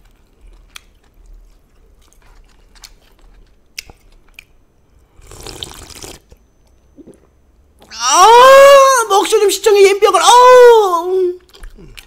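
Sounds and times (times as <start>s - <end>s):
person chewing noodles: 0.0s - 7.2s, 11.4s - 12.0s.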